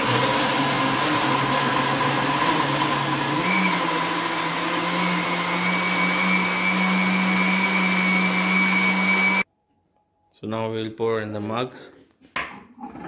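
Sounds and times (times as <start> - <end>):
blender motor whine: 0.0 - 9.5.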